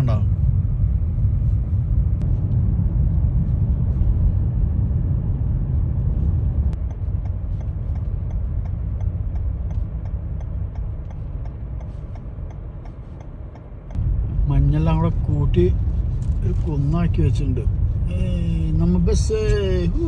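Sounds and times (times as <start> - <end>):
car road and engine rumble: 0.0 - 20.0
light regular ticking: 6.8 - 14.0.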